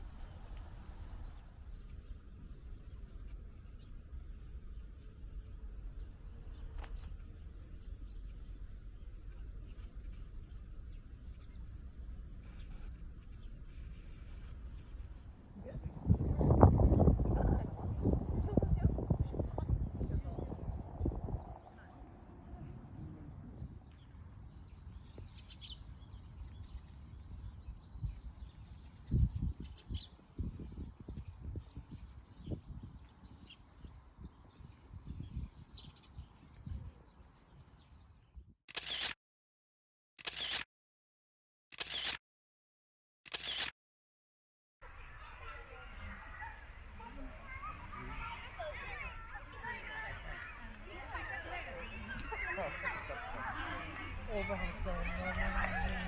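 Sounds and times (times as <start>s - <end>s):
steady low rumble: 0.0s - 25.0s
sharp click: 38.7s - 39.2s, 40.2s - 40.7s, 41.7s - 42.2s, 43.3s - 43.7s.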